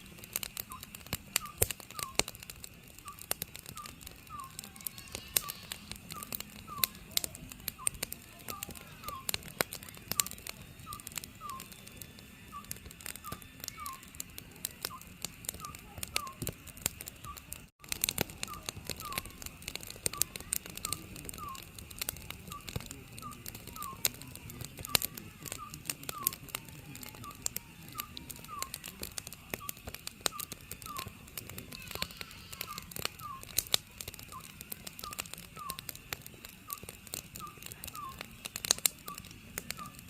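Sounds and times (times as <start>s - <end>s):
wood fire crackling: 0.0s - 40.0s
owl hooting: 0.7s - 2.3s, 3.1s - 7.0s, 10.1s - 11.7s, 12.5s - 14.2s, 18.4s - 19.4s, 20.1s - 21.8s, 29.6s - 33.6s, 34.3s - 35.9s, 36.7s - 38.2s.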